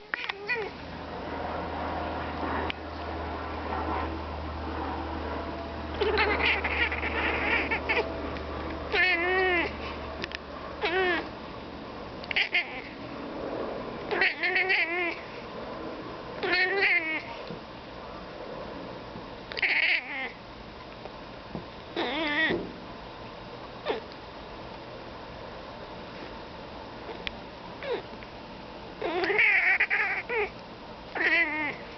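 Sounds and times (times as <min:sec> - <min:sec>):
cat meowing: 0:00.0 - 0:00.8, 0:06.0 - 0:08.1, 0:08.9 - 0:09.8, 0:10.8 - 0:11.3, 0:12.3 - 0:13.0, 0:14.1 - 0:15.2, 0:16.4 - 0:17.3, 0:19.6 - 0:20.4, 0:22.0 - 0:22.6, 0:29.0 - 0:30.5, 0:31.2 - 0:31.9.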